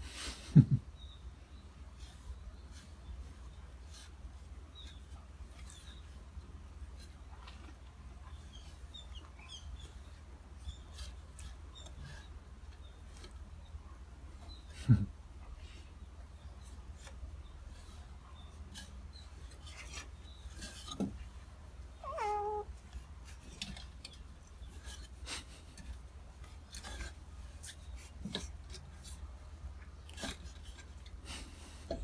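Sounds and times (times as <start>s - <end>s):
light scratching and rubbing: 16.6s - 31.6s
cat meowing: 22.0s - 22.7s.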